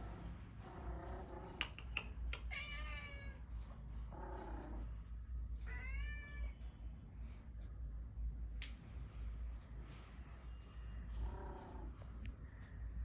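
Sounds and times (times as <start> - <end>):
cats meowing: 0.7 - 3.4, 5.6 - 6.6
sharp clicks: 1.6 - 2.5.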